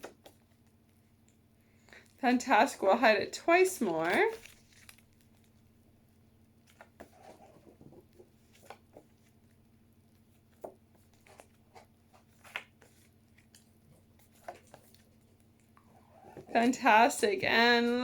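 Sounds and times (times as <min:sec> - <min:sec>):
paper cards shuffled: 0:03.8 - 0:05.6.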